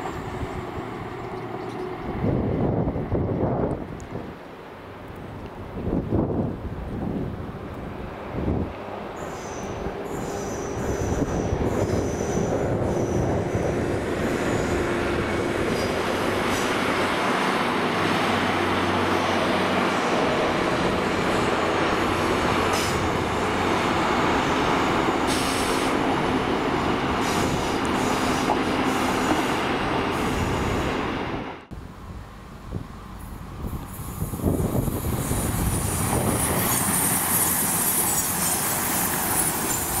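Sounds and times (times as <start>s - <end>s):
train wheels rumbling on rail: 0.0s - 4.4s, 5.2s - 40.0s.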